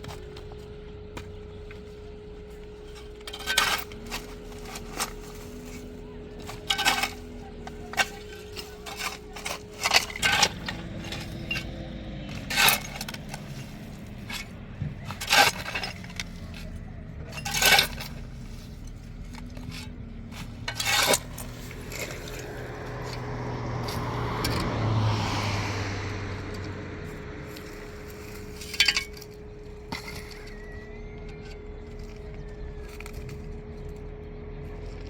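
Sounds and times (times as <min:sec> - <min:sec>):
hard objects clinking: 0:00.0 - 0:25.2, 0:26.3 - 0:35.0
steady engine hum: 0:00.0 - 0:35.0
louder engine passing: 0:21.5 - 0:28.6.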